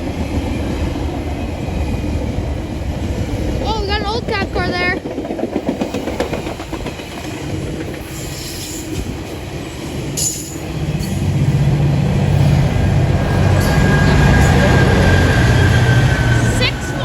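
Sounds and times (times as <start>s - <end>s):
diesel locomotive engine drone: 0.0s - 17.0s
wheels clacking over rails: 0.0s - 17.0s.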